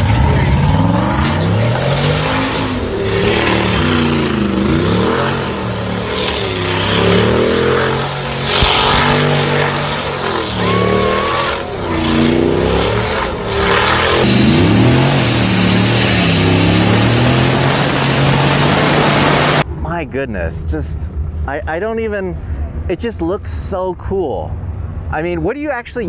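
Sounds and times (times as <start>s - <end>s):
car engine revving: 0.0s - 19.7s
tires spinning on pavement: 0.0s - 19.7s.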